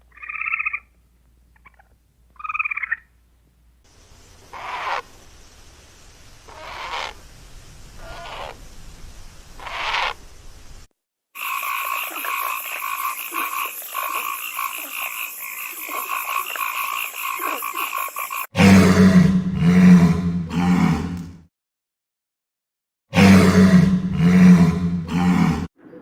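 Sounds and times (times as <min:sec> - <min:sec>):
frogs croaking: 0:01.6 - 0:03.1, 0:04.0 - 0:07.2, 0:08.0 - 0:08.6, 0:09.6 - 0:10.2, 0:11.4 - 0:19.1.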